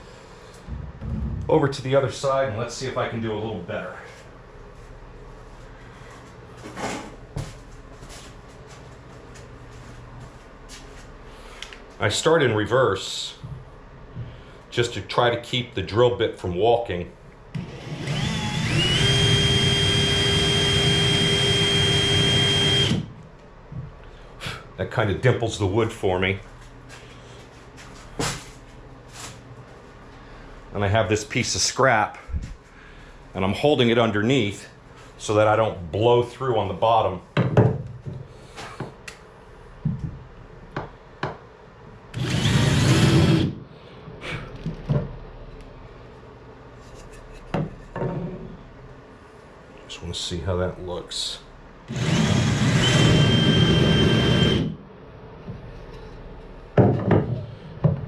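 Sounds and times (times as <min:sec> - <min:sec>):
electric drill whining: 0:17.6 - 0:23.1, 0:42.2 - 0:43.5, 0:51.9 - 0:54.7.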